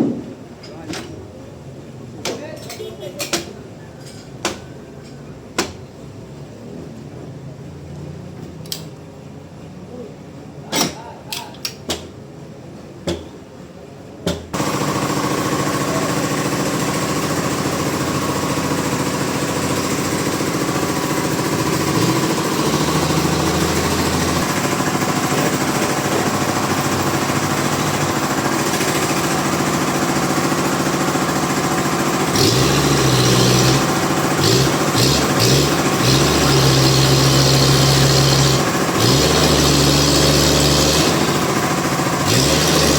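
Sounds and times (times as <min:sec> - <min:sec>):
sharp knocks: 0:00.0 - 0:00.4
sawmill machinery running: 0:14.6 - 0:42.9.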